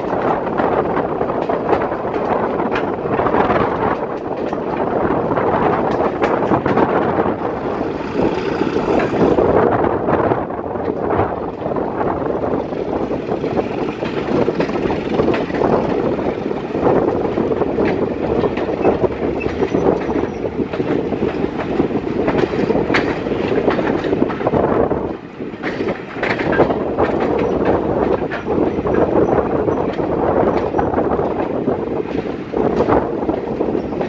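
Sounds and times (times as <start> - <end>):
train coach rolling rumble: 0.0 - 34.0
wheel clicks over rail: 25.6 - 34.0.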